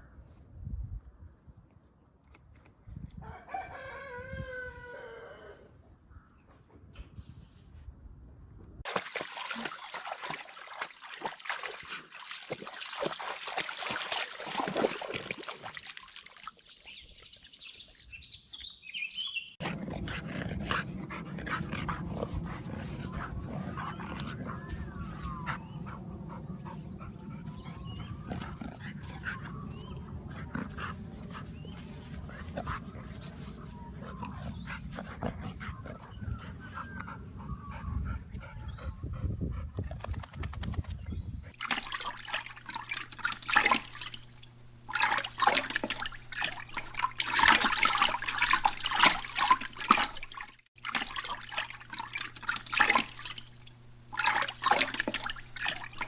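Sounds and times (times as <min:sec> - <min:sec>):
water splashing: 0:08.8 - 0:17.5, 0:41.6 - 0:56.0.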